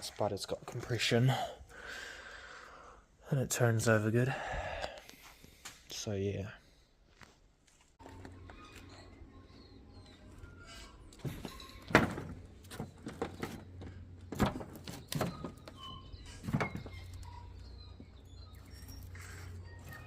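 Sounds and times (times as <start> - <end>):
knocks and thunks: 11.2 - 15.6.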